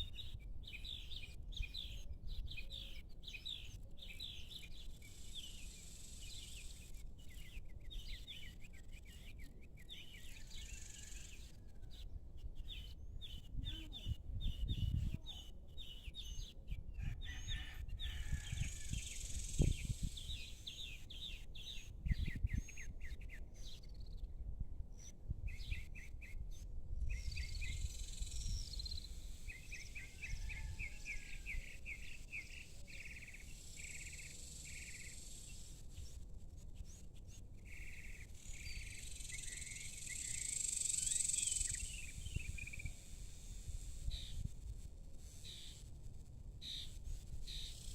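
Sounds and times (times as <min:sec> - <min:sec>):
small birds chirping: 0:00.0 - 0:11.6, 0:12.4 - 0:17.4, 0:27.0 - 0:45.9, 0:46.6 - 0:47.9
high insect hum: 0:05.0 - 0:07.1, 0:27.2 - 0:36.7, 0:37.6 - 0:47.9.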